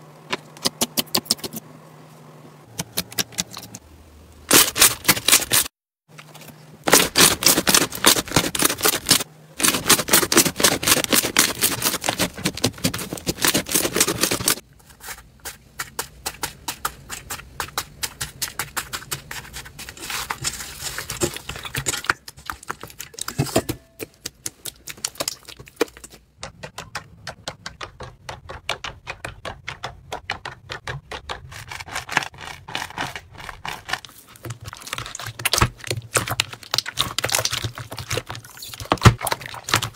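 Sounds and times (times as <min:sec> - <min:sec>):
slime crackling and popping: 0:31.8 - 0:39.9.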